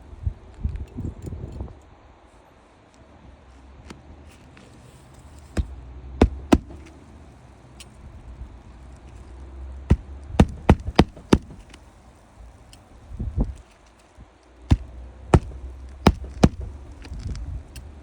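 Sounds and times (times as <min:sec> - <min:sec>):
hammer blows on shingle roof: 0:05.6 - 0:06.9, 0:09.9 - 0:11.8, 0:14.7 - 0:17.0.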